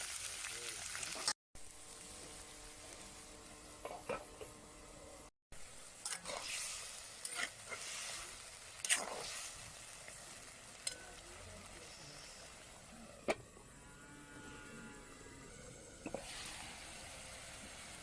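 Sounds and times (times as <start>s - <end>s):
food sizzling in a pot: 0.0s - 13.8s, 14.4s - 18.0s
spoon scraping a pot: 6.0s - 8.2s.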